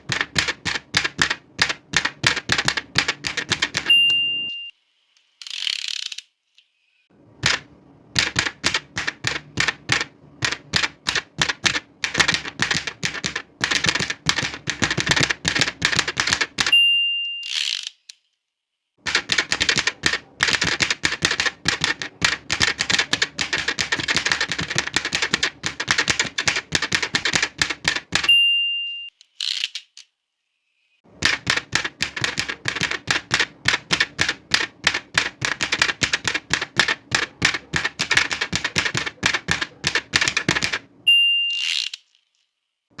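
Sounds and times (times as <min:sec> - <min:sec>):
manual typewriter typing: 0:00.0 - 0:04.2, 0:07.4 - 0:16.8, 0:19.0 - 0:28.4, 0:31.1 - 0:40.9
typewriter carriage return: 0:00.0 - 0:04.5, 0:07.4 - 0:16.8, 0:19.1 - 0:28.4, 0:31.1 - 0:40.9
typewriter bell ding: 0:03.4 - 0:04.7, 0:16.6 - 0:17.5, 0:28.2 - 0:29.1, 0:41.1 - 0:41.6.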